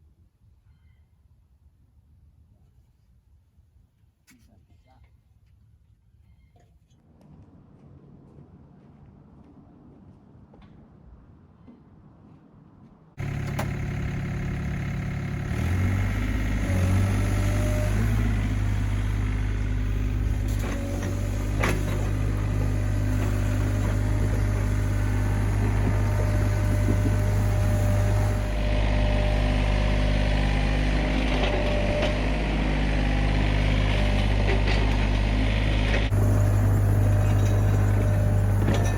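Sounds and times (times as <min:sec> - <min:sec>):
diesel engine running: 0:13.2 - 0:38.9.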